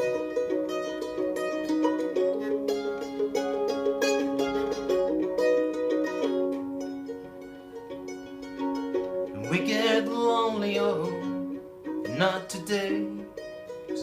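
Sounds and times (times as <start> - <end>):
plucked string instrument strumming: 0.0 - 14.0.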